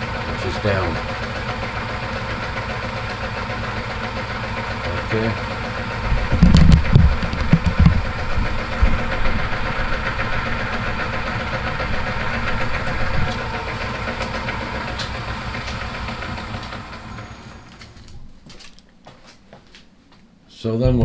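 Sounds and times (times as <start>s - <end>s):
thin high whine: 0.0s - 18.2s
lathe gears whirring and clattering: 0.0s - 18.3s.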